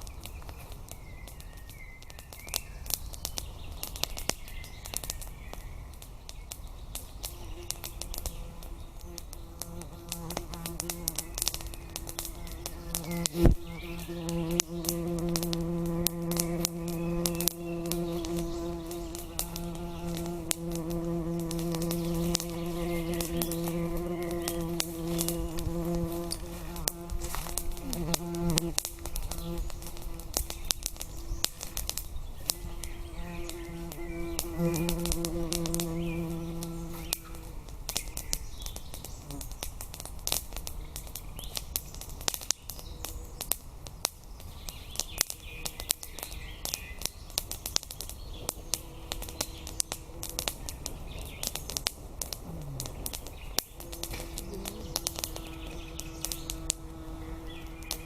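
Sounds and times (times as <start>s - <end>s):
sharp crackling clicks: 0.0s - 58.0s
flying insect buzzing: 7.3s - 37.6s, 48.3s - 58.0s.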